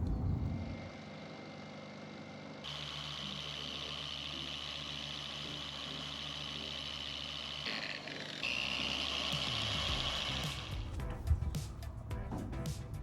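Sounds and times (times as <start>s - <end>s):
electric polisher buffing car paint: 0.8s - 11.0s.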